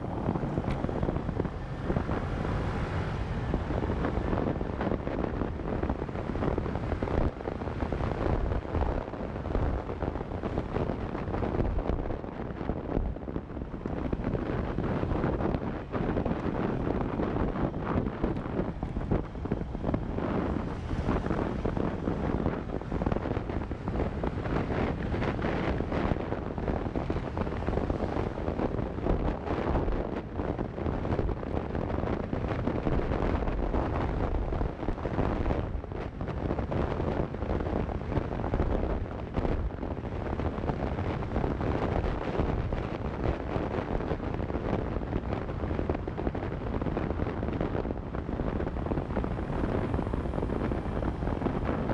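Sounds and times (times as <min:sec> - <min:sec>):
road noise: 0:00.0 - 0:51.9
wind buffeting microphone: 0:00.0 - 0:51.9.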